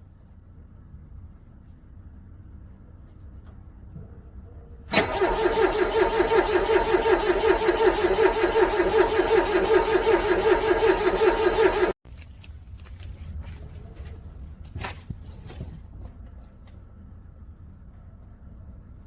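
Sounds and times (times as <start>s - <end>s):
car engine cranking: 4.9s - 12.0s.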